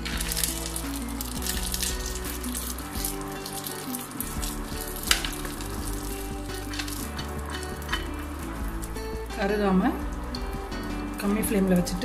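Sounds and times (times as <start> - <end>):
spoon stirring in a pan: 0.0 - 9.2
nuts sizzling in a pan: 0.0 - 12.0.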